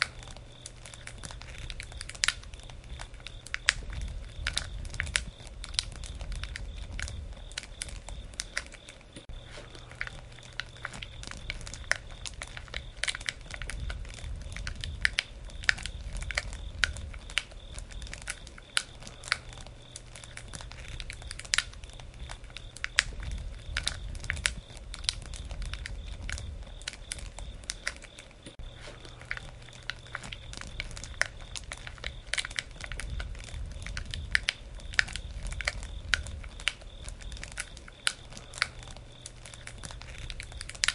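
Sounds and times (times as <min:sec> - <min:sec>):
campfire crackling and popping: 0:00.0 - 0:40.9
low rumble: 0:09.3 - 0:27.7, 0:28.6 - 0:37.6.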